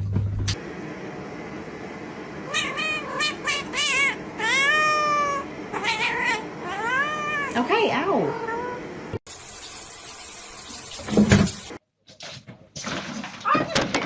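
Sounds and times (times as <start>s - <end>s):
cat meowing: 2.5s - 8.8s.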